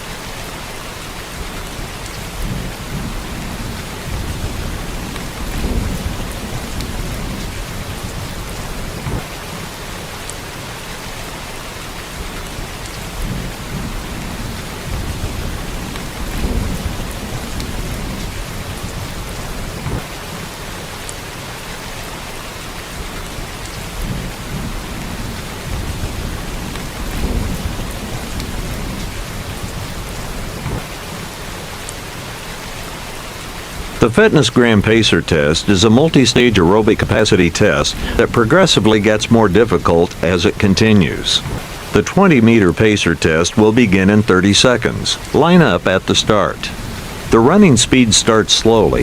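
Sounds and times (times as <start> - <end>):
heavy rain: 0.0 - 49.0
thunder rumbles: 1.3 - 10.2, 12.1 - 21.0, 22.8 - 34.0.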